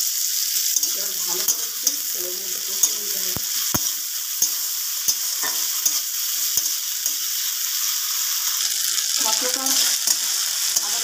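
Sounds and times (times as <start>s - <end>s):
onions sizzling in hot oil: 0.0s - 11.0s
metal spatula scraping a pan: 0.6s - 8.7s.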